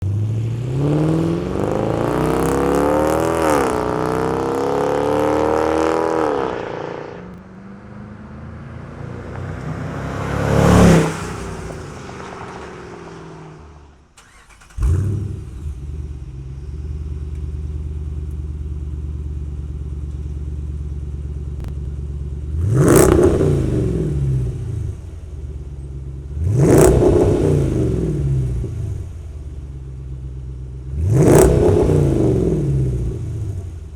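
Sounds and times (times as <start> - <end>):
engine revving sharply: 0.0 - 16.1, 22.6 - 25.0, 26.4 - 29.1, 31.0 - 33.7
car engine accelerating: 0.0 - 33.9
car passing by loudly: 5.7 - 14.4
car engine deep idle: 15.6 - 22.6.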